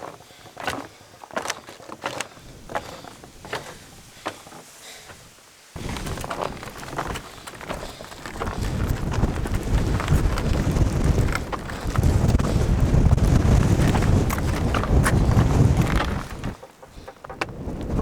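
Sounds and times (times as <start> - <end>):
footsteps crunching in snow: 0.0 - 16.7
wind buffeting microphone: 5.8 - 18.0.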